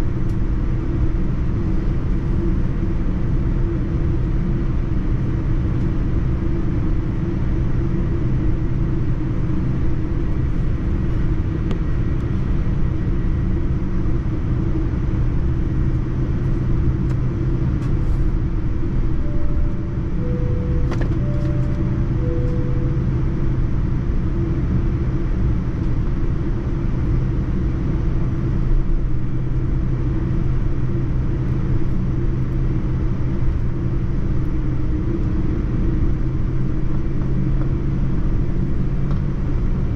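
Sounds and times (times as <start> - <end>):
airliner cabin rumble: 0.0 - 39.9
two-tone cabin chime: 19.0 - 23.8.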